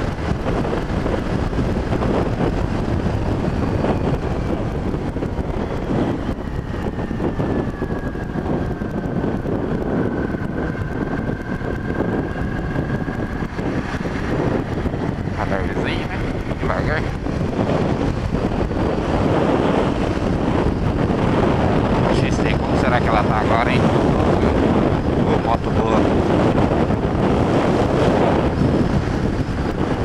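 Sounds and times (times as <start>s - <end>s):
motorcycle engine: 0.0s - 22.8s
wind rushing over microphone: 0.0s - 30.0s
faint whine dropping in pitch: 2.2s - 27.0s.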